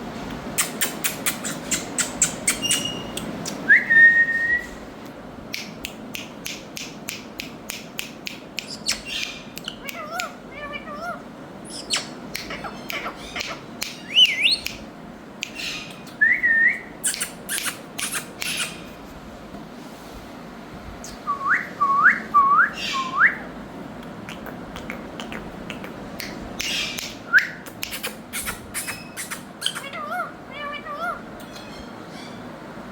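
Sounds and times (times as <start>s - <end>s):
parakeets squawking: 0.6s - 3.4s, 8.7s - 14.7s, 15.5s - 16.2s, 17.0s - 18.9s, 22.7s - 23.2s, 26.6s - 27.2s, 28.0s - 32.5s
parakeets whistling: 0.6s - 4.7s, 8.6s - 14.8s, 15.5s - 18.9s, 21.0s - 23.5s, 26.6s - 32.5s.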